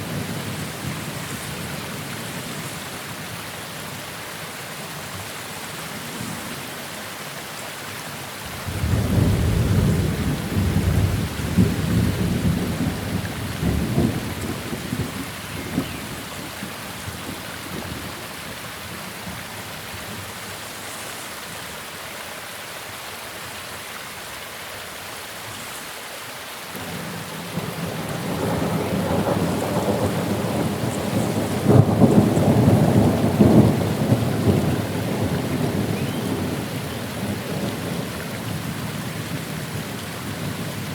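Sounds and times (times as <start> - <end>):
steady rain: 0.0 - 40.9
thunder rolling: 8.5 - 15.9.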